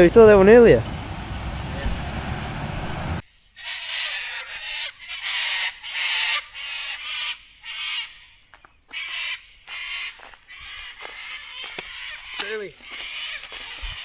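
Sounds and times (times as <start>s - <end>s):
bird harsh calls: 3.2s - 14.0s.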